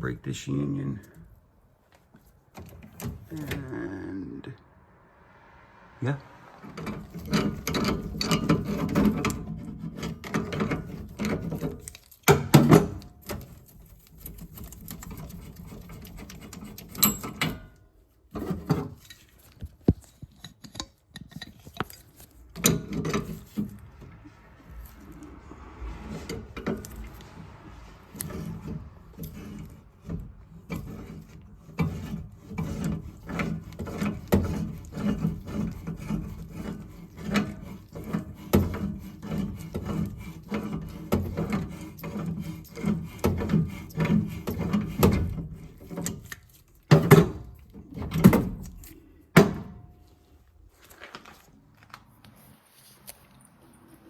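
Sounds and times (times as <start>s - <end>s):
wrench clicks and scrapes: 6.7s - 49.2s.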